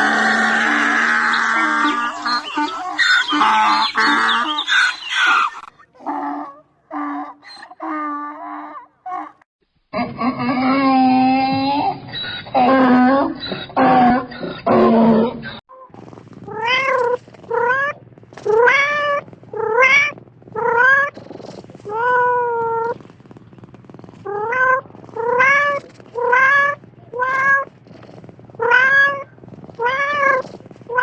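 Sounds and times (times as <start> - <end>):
cat meowing: 16.5 - 21.2, 24.3 - 27.7, 28.6 - 31.0.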